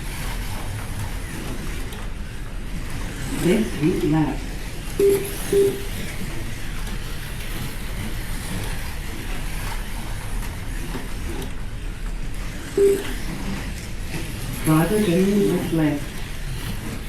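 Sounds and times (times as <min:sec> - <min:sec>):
slot car motors whirring: 0:00.0 - 0:17.0
short electronic beep: 0:05.0 - 0:05.9, 0:12.8 - 0:13.2.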